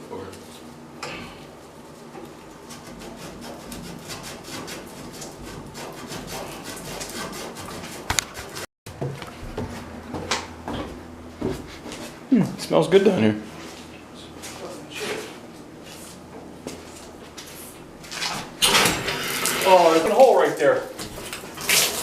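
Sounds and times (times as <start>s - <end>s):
rubbing strokes on pipe: 2.6s - 8.6s.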